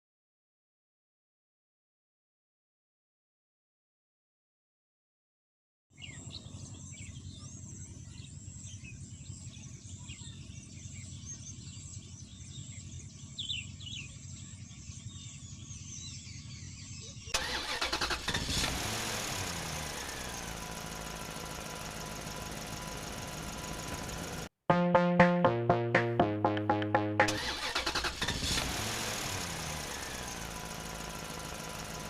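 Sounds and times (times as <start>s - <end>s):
birds chirping: 6.0s - 17.4s
motor running low: 17.7s - 24.5s, 27.2s - 32.0s
electronic music: 24.7s - 27.4s.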